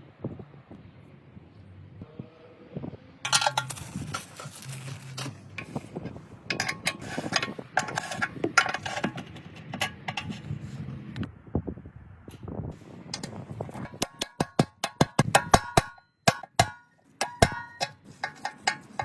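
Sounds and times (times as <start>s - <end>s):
metal tools clinking and scraping: 3.3s - 11.0s, 13.0s - 19.0s.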